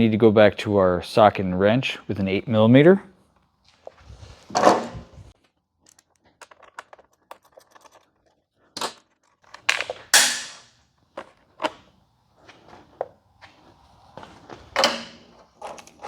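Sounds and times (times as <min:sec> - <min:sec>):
metallic knocks and clatters: 0:09.2 - 0:10.7.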